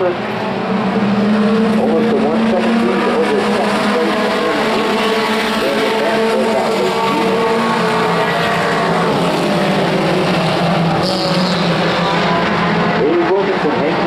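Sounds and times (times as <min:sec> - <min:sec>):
race truck engines droning: 0:00.0 - 0:14.0.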